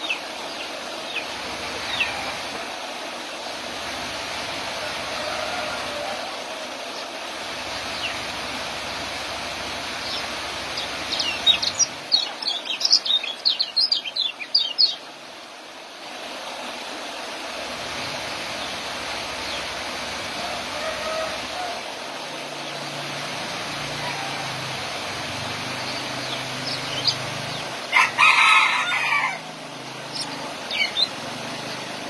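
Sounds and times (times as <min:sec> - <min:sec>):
steady background hiss: 0:00.0 - 0:32.0
songbird chirping: 0:10.0 - 0:15.1, 0:25.6 - 0:31.9.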